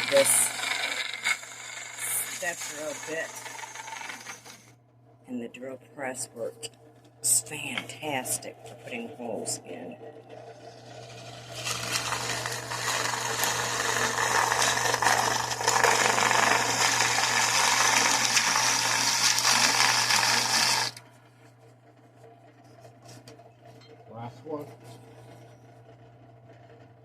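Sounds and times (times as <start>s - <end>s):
drill bit grinding through gourd: 0.0s - 4.8s, 7.8s - 21.0s
drill press motor humming: 0.0s - 5.2s, 6.7s - 27.0s.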